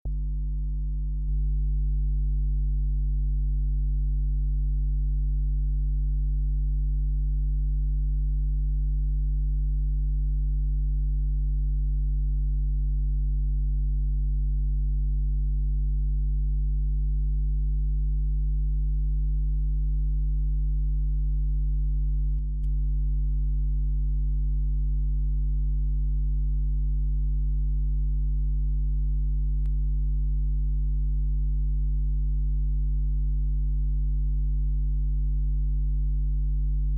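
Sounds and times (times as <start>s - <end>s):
faint click: 22.3s - 22.8s, 29.6s - 29.8s.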